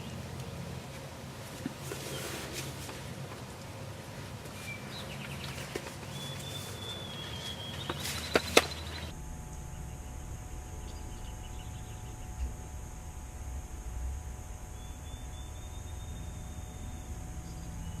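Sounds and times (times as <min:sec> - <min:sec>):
faint hum: 0:00.0 - 0:18.0
outdoor background noise: 0:00.0 - 0:18.0
steady hiss: 0:00.0 - 0:18.0
songbirds chirping: 0:01.6 - 0:09.1, 0:09.7 - 0:12.7.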